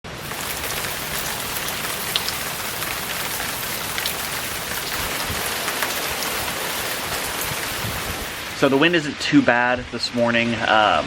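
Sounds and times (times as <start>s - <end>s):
sharp nearby raindrops: 0.0s - 9.3s
heavy rain pouring: 0.0s - 9.6s.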